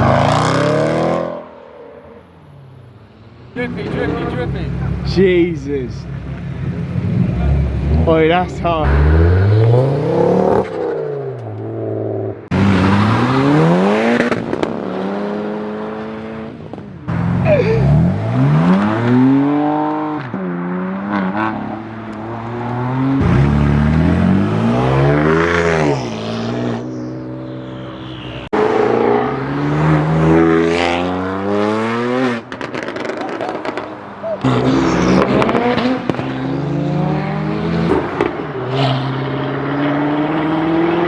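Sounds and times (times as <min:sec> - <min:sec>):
car engine revving hard: 0:08.8 - 0:11.2, 0:12.5 - 0:16.6, 0:22.4 - 0:27.0, 0:28.5 - 0:41.0.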